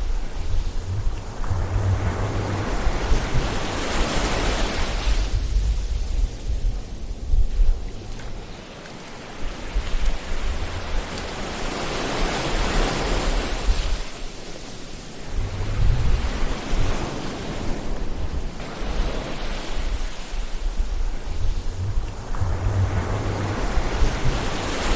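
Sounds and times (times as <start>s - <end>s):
low surf rumble: 0.0s - 8.6s, 15.2s - 24.9s
waves breaking and washing in: 0.0s - 24.9s.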